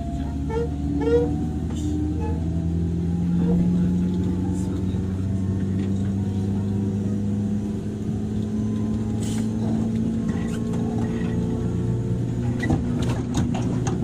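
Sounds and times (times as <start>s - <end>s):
low wheel rumble: 0.0s - 14.0s.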